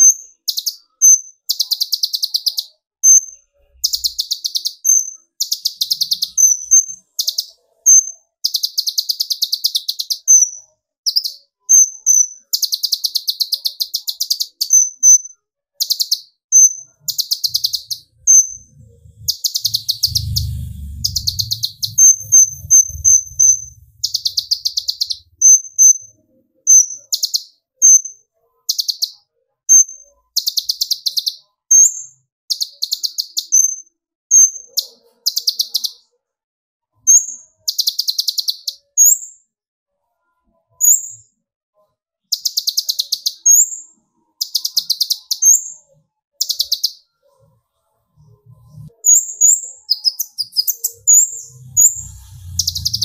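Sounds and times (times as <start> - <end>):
bird trilling: 15.8 - 26.0, 49.1 - 53.0
sharp high bird notes: 17.5 - 25.3
low rumble: 18.0 - 25.3, 50.9 - 53.0.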